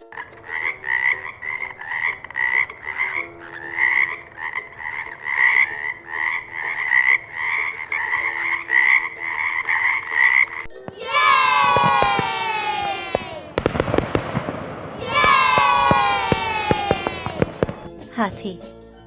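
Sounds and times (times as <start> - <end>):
frog croaking: 0.4 - 10.6.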